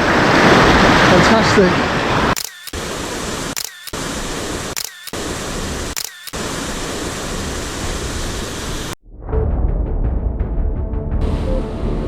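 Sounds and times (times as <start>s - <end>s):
surf rushing: 0.0s - 9.0s
camera shutter clicks: 2.4s - 2.9s, 3.5s - 5.3s, 5.9s - 6.5s.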